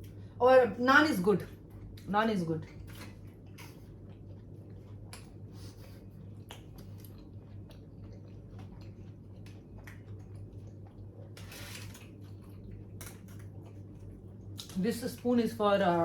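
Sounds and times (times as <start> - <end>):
steady low hum: 0.0 - 16.0
person chewing food: 2.7 - 14.8.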